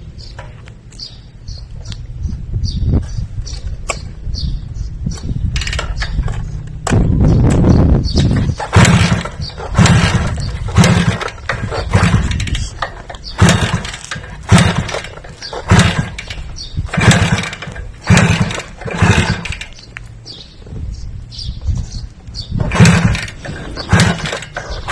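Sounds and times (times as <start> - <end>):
motor revving in bursts: 8.4 - 12.4, 13.2 - 16.2, 16.9 - 19.6, 22.6 - 24.9.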